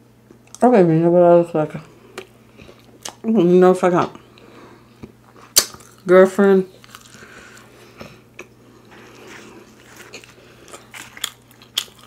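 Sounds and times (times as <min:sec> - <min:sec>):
close chewing with crunches: 0:04.3 - 0:06.1, 0:06.7 - 0:12.0.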